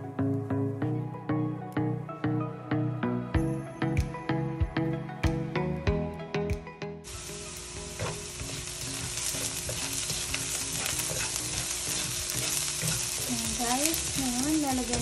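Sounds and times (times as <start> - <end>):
food sizzling in hot oil: 7.1 - 15.0.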